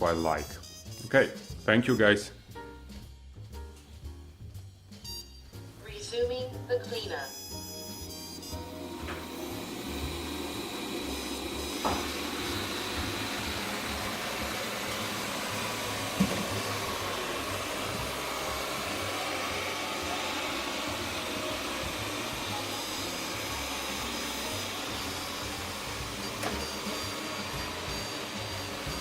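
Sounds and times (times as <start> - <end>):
robot vacuum whirring: 7.7 - 29.0.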